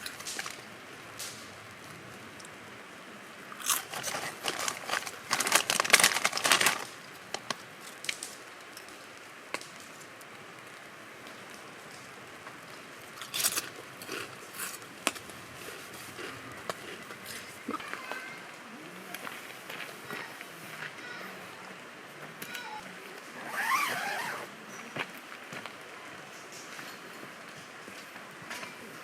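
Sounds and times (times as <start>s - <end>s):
crinkling crunching rustles: 0.0s - 2.0s, 3.6s - 10.2s, 23.3s - 25.7s.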